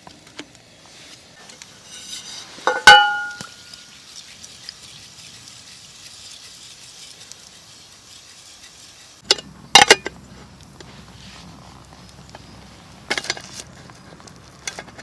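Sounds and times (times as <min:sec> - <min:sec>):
faint steady sizzle: 0:00.0 - 0:15.0
metallic clinks of cookware: 0:02.6 - 0:03.6
cookware click: 0:02.7 - 0:03.5.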